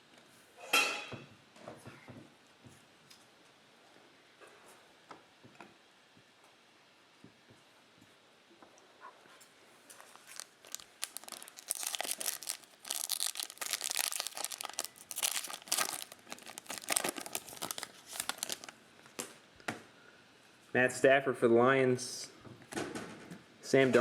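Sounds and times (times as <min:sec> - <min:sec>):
wrapper tearing and crinkling: 0:09.9 - 0:18.8.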